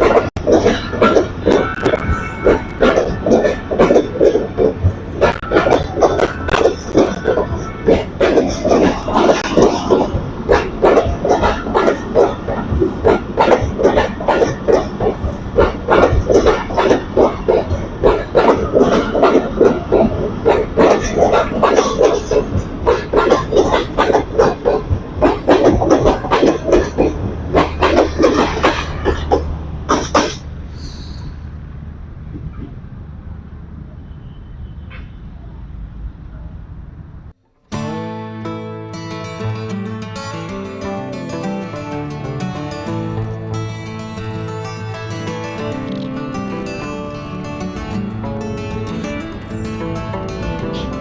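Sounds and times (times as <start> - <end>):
train wheels clattering over rail joints: 0.0 - 30.5.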